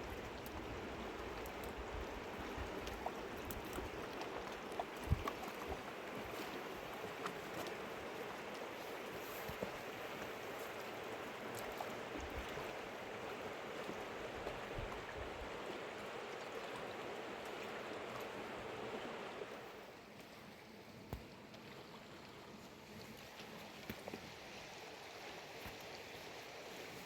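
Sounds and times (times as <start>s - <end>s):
river water rushing over rocks: 0.0s - 19.8s.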